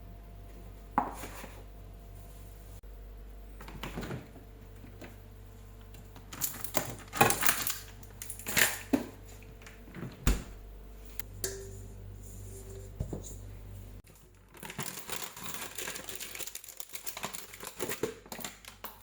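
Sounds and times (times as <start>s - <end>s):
kitchen clicks and clatters: 6.2s - 9.8s, 14.2s - 19.0s.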